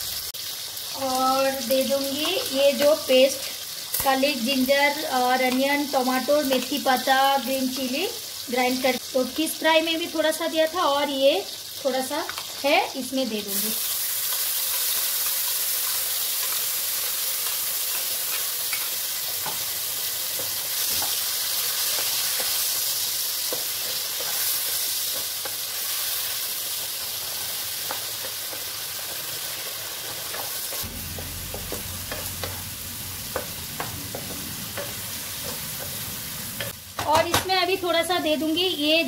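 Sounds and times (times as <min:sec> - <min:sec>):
paste sizzling in hot oil: 0:00.0 - 0:37.1
spatula tapping and scraping: 0:21.8 - 0:22.7, 0:23.4 - 0:25.6, 0:30.2 - 0:30.9, 0:33.3 - 0:37.5.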